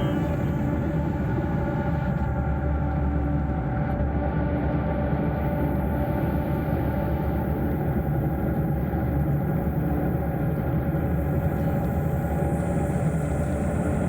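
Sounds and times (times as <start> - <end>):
motorcycle engine humming: 0.0 - 2.2.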